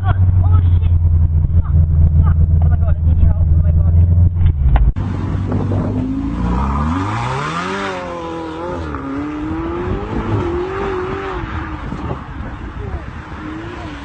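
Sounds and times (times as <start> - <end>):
low rumble: 0.0 - 7.5
car engine accelerating: 0.0 - 14.0.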